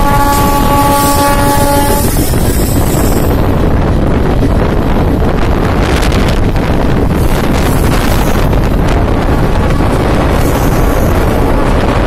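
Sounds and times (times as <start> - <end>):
horn-like pitched tone: 0.0 - 2.1
train wheels rumbling on track: 0.0 - 12.0
wind buffeting the microphone: 0.0 - 12.0.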